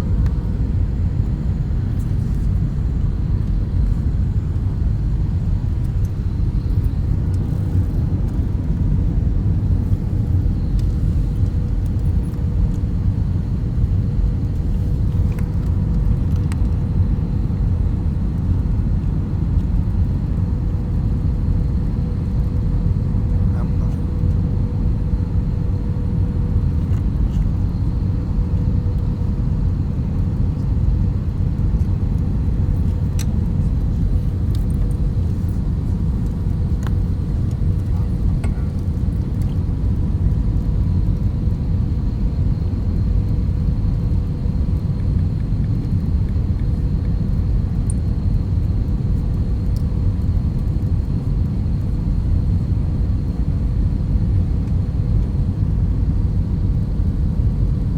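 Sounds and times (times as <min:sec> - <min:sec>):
airliner engines and rushing air: 0:00.0 - 0:57.9.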